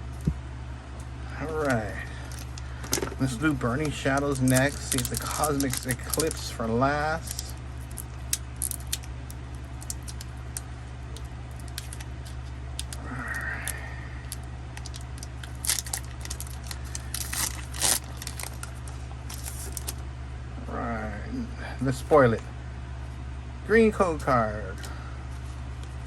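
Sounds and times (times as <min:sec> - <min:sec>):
low hum: 0:00.0 - 0:26.0
foil pack crinkling and tearing: 0:01.4 - 0:20.0.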